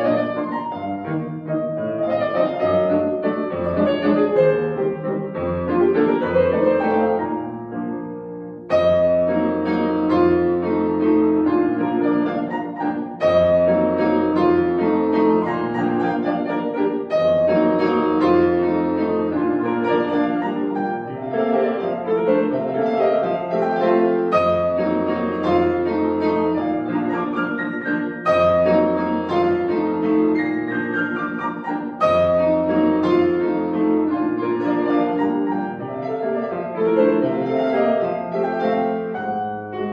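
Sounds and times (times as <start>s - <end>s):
solo piano classical piece: 0.0s - 39.9s.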